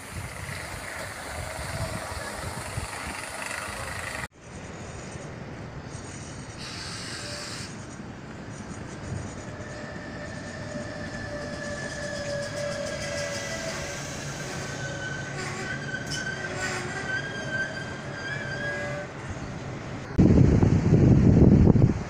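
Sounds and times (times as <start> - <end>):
train hiss: 0.0 - 16.2
passenger train rolling: 0.0 - 22.0
wind: 0.0 - 22.0
high wheel squeal: 0.2 - 4.3, 5.9 - 8.0, 9.2 - 19.5.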